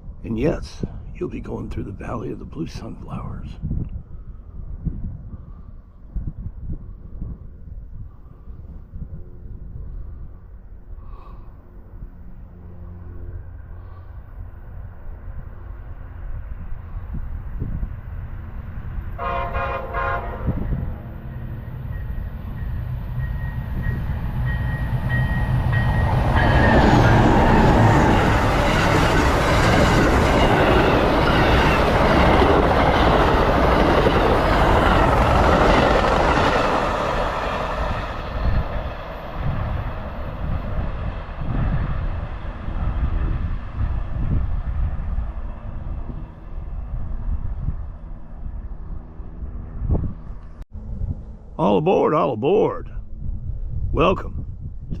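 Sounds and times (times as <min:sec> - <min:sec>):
train passing at speed: 0:00.0 - 0:51.6
train horn: 0:19.1 - 0:21.0.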